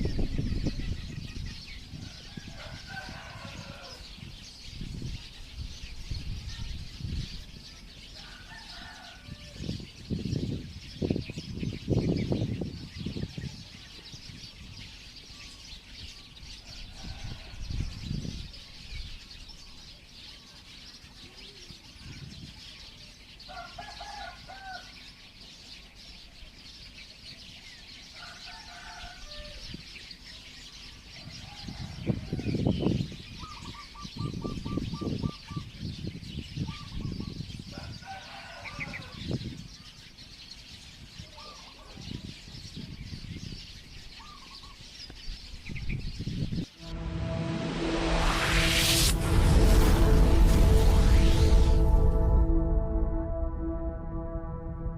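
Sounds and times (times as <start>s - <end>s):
flock of small birds chirping: 0.0s - 46.8s
loud low bursts: 46.8s - 54.9s.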